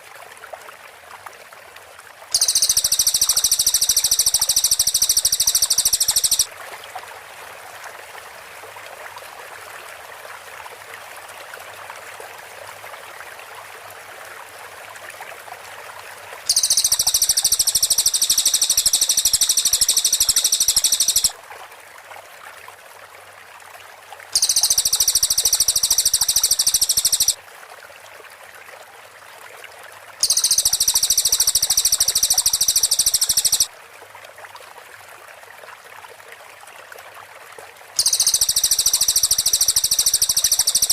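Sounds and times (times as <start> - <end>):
background hiss: 2.4 - 6.5, 16.5 - 21.3, 24.4 - 27.4, 30.2 - 33.7, 38.0 - 40.9
bird high-pitched chattering trill: 2.4 - 6.5, 16.5 - 21.3, 24.4 - 27.4, 30.2 - 33.7, 38.0 - 40.9.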